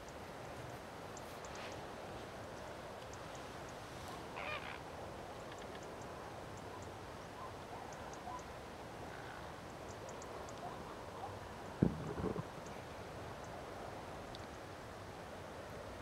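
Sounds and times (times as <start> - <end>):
steady background noise: 0.0 - 16.0
faint short bird calls: 4.1 - 4.8.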